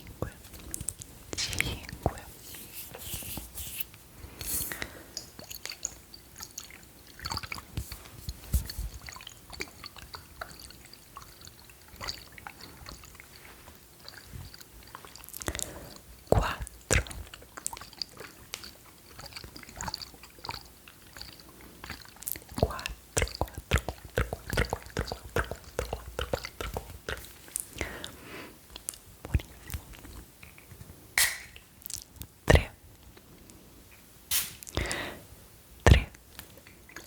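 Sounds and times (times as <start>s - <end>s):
wet mouth clicks and smacks: 5.2s - 10.7s, 14.1s - 32.7s, 35.9s - 37.0s.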